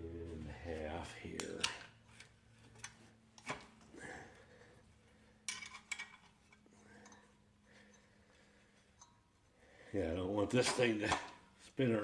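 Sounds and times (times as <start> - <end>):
faint low hum: 0.0 - 10.2
wrench clinking on bolts: 5.5 - 7.3.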